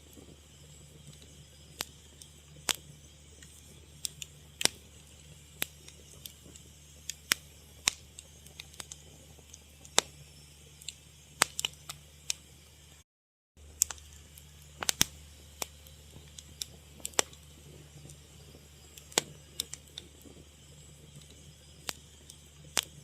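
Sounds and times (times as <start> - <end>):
fire crackling and popping: 0.0 - 13.0, 13.6 - 23.0
faint low hum: 13.6 - 23.0.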